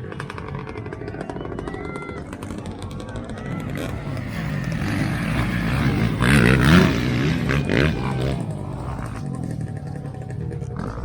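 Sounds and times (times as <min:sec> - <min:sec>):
dirt bike engines revving: 0:00.0 - 0:11.0.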